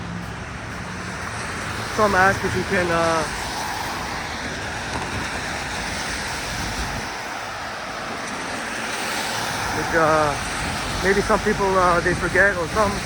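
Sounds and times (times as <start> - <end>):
traffic on wet pavement: 0.0 - 13.0.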